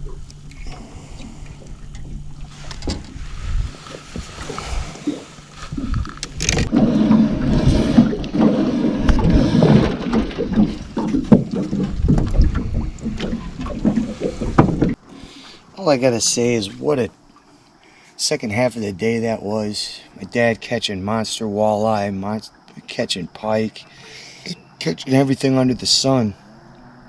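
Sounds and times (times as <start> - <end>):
outboard motor running: 0.0 - 15.5.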